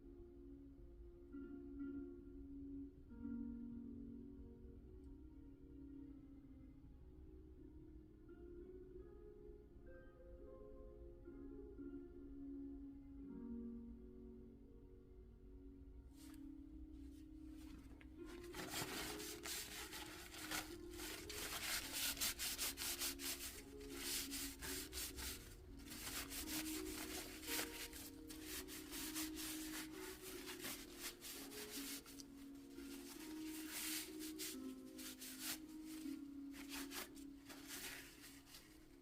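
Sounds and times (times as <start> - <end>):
soft background music: 0.0 - 39.0
hand sanding a hard surface: 18.6 - 32.2.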